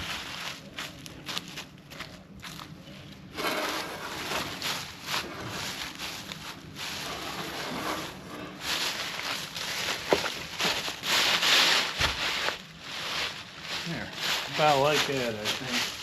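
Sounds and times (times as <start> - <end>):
footsteps crunching through dry leaves: 0.0 - 16.0.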